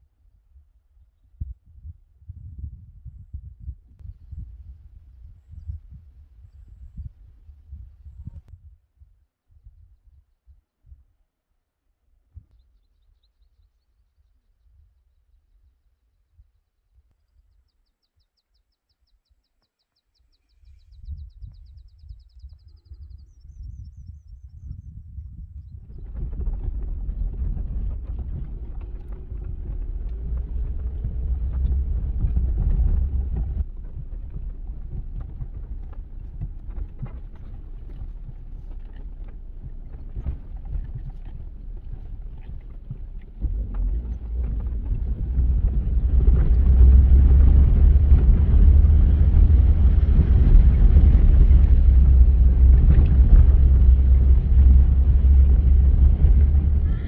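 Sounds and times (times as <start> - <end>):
wind buffeting microphone: 1.0 - 8.8, 20.5 - 57.0.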